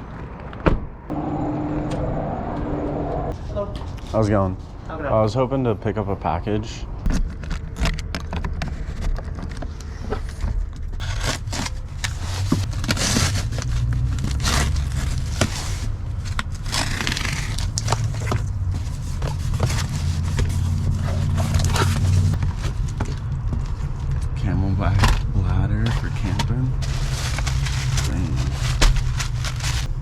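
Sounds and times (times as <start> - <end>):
steady low rumble: 0.8 - 8.0, 8.6 - 30.0
paper rustling: 7.1 - 24.3, 24.9 - 30.0
cardboard and tape tearing: 11.0 - 22.9, 25.8 - 29.9.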